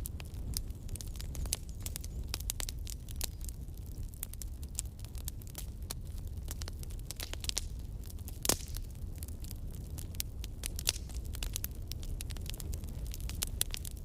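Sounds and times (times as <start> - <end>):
low rumble of flames: 0.0 - 14.0
wood crackling and popping: 0.0 - 14.0.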